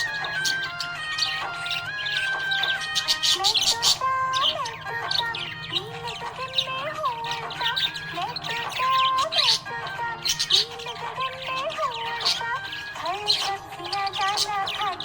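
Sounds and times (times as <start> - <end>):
budgie chirping: 0.0 - 15.0
instrumental background music: 0.0 - 15.0.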